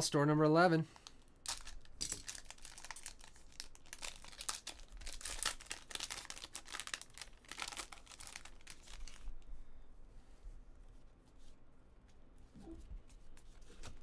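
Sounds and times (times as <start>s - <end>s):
wrapper tearing and crinkling: 1.0s - 9.4s.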